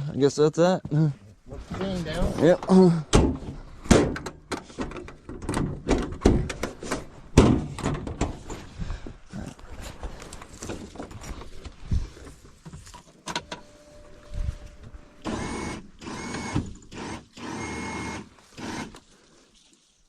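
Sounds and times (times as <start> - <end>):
small electric motor whirring: 15.2 - 19.0.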